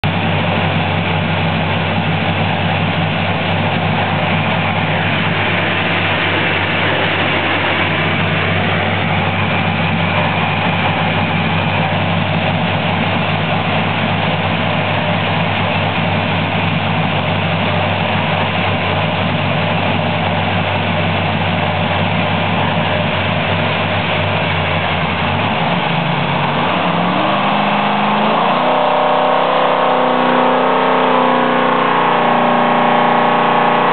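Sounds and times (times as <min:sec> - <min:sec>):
race engine idling and revving: 0:00.0 - 0:33.9.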